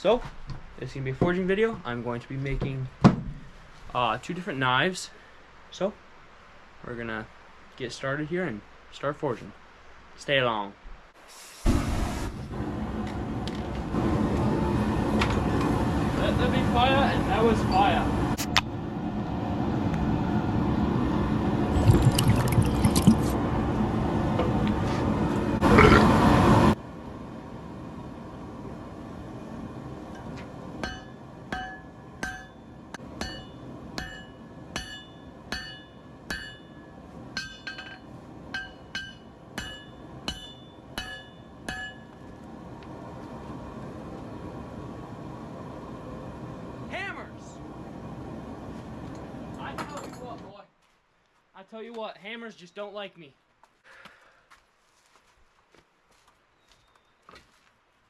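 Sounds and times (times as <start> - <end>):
hammer ringing on anvil: 30.8 - 42.2.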